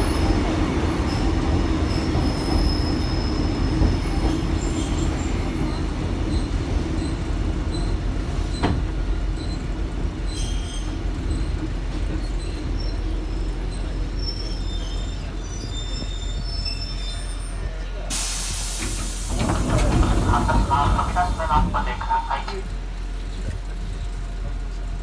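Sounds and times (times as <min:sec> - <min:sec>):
wheels rumbling on rail: 0:00.0 - 0:25.0
high wheel squeal: 0:01.9 - 0:18.3
sudden hiss: 0:18.1 - 0:21.9.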